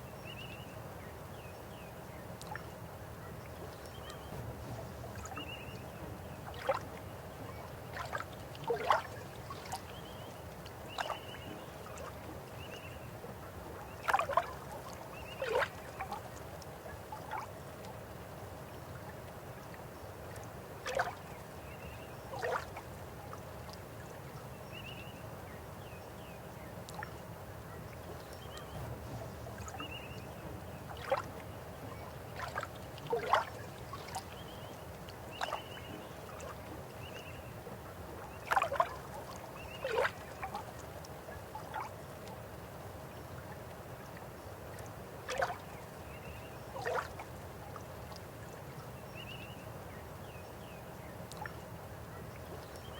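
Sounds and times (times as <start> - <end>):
river water flowing: 2.0 - 52.9
water gurgles and splashes: 6.4 - 10.3, 13.7 - 16.4, 20.8 - 22.9, 28.7 - 37.1, 38.2 - 42.6, 44.8 - 48.4.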